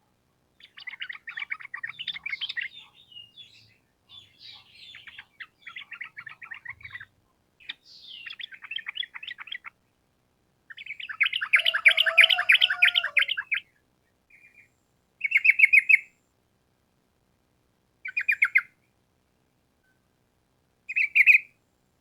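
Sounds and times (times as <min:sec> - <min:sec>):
bird singing fast chattering notes: 0:00.6 - 0:09.7, 0:10.7 - 0:13.6.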